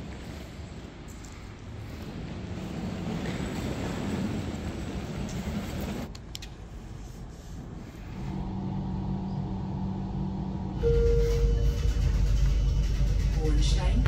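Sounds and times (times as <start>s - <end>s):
train rumble: 0.0s - 14.0s
steady hum: 7.8s - 14.0s.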